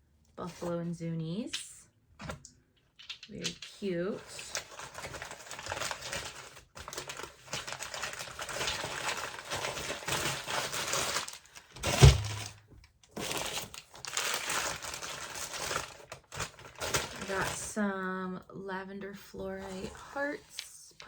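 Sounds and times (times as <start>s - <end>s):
packing material rustling: 3.0s - 17.8s
heavy thump: 11.9s - 12.6s.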